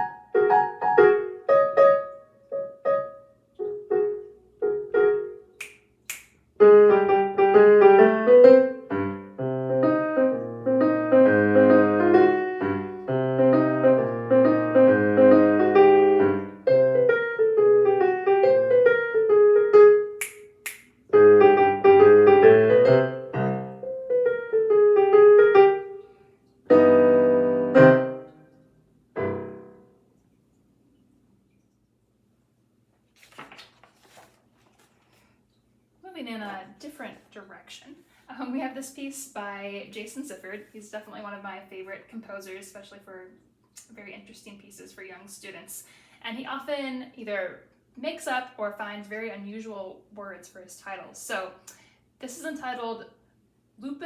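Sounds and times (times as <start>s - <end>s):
jazzy piano solo: 0.0s - 5.7s, 6.6s - 20.2s, 21.1s - 26.1s, 26.7s - 28.4s, 29.2s - 29.9s
finger snaps: 5.6s - 6.4s, 20.2s - 21.0s.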